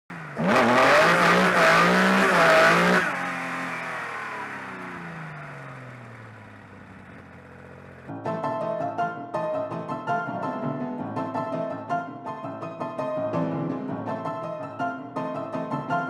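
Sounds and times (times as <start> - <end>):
car engine revving: 0.1 - 8.1
piano music: 8.1 - 16.0.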